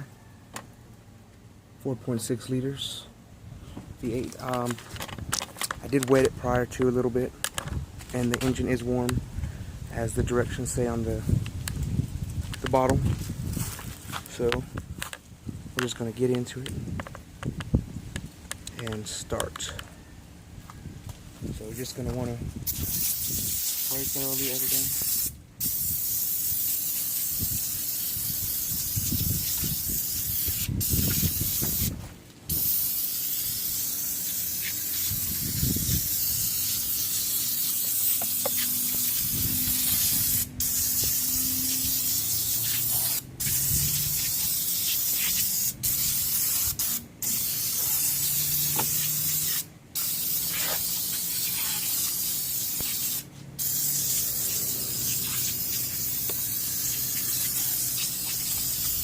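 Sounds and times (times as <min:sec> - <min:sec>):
aerosol can spraying hiss: 0:22.7 - 0:59.0.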